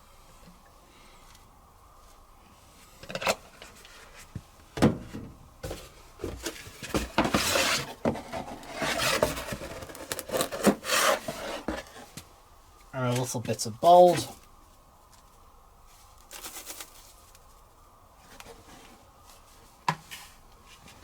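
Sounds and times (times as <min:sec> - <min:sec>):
rubbing and scraping: 0:06.4 - 0:12.2.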